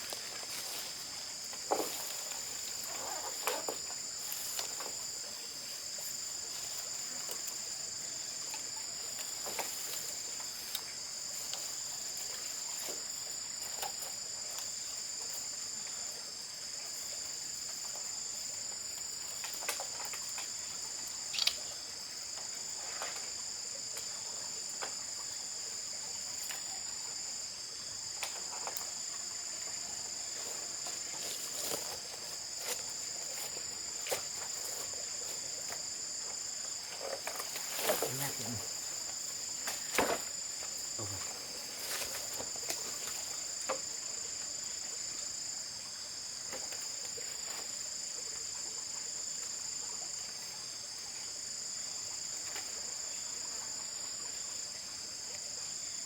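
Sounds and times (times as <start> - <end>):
insect chorus: 0.0 - 56.0.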